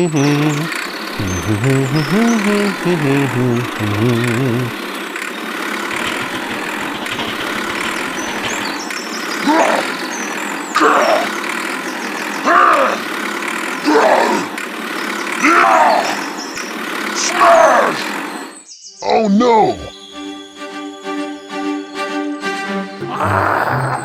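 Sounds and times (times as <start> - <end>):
engine droning: 0.0 - 17.2
rising and falling call: 19.5 - 24.0.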